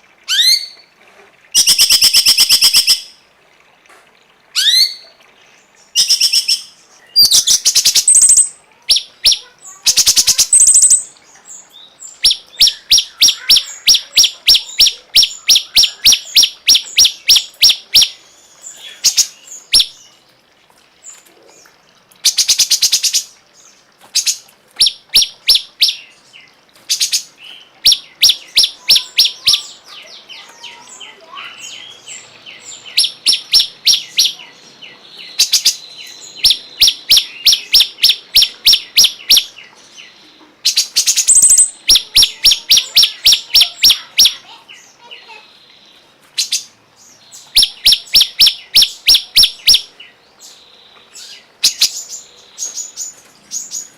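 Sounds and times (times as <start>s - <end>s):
bird singing sharp notes: 6.0s - 11.1s, 40.7s - 44.6s.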